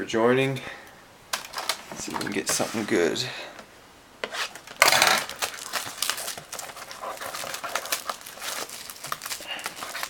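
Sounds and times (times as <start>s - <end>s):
plastic shrink wrap crinkling: 1.3s - 2.9s, 4.4s - 10.0s.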